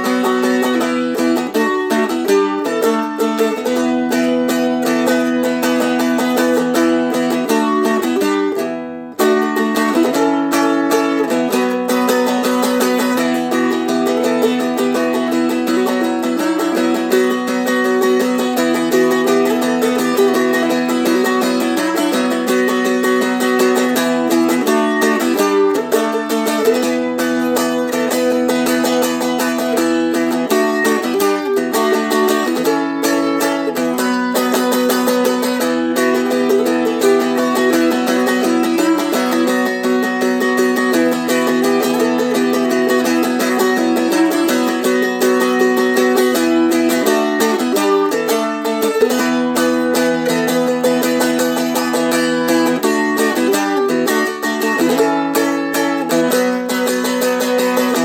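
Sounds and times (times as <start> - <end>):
dulcimer strummed with droning strings: 0.0 - 58.0.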